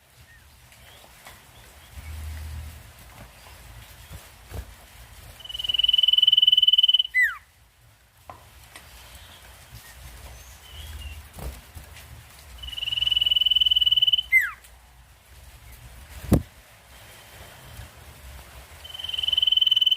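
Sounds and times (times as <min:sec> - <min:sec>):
bird trilling: 0:05.4 - 0:07.4, 0:12.6 - 0:14.6, 0:18.8 - 0:19.9.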